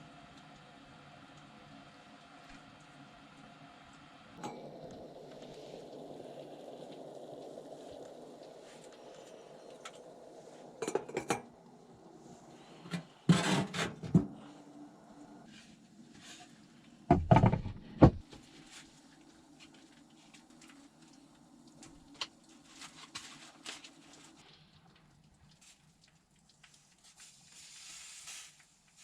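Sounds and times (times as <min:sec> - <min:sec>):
dull thump and clank: 0:17.1 - 0:18.3.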